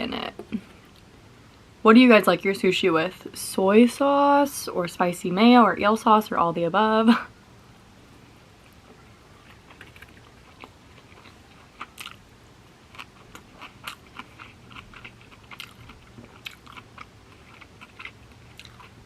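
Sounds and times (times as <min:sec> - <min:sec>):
person chewing: 0:08.6 - 0:12.3, 0:12.9 - 0:19.0.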